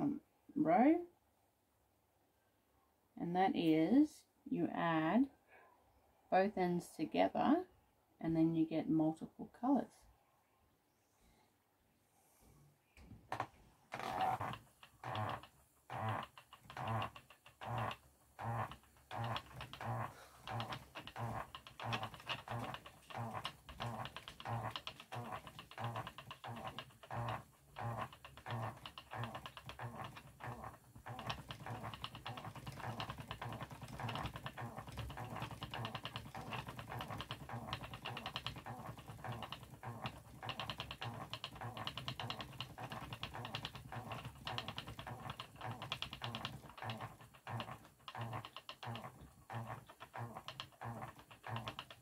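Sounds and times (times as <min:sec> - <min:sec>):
spinning wheel clicking: 0:14.0 - 0:52.0.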